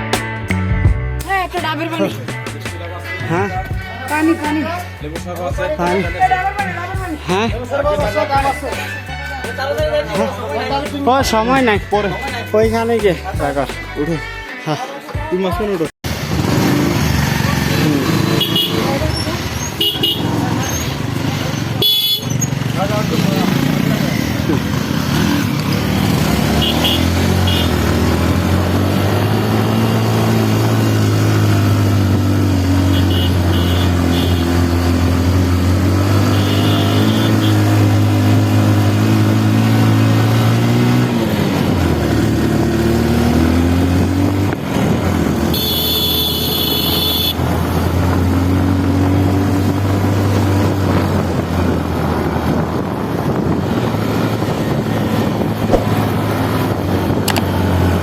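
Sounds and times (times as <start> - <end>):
vehicle horn: 18.2 - 20.4, 21.8 - 22.4, 26.5 - 27.9, 32.8 - 34.8, 36.0 - 37.9, 45.5 - 47.5
vehicle engine running: 52.8 - 58.0.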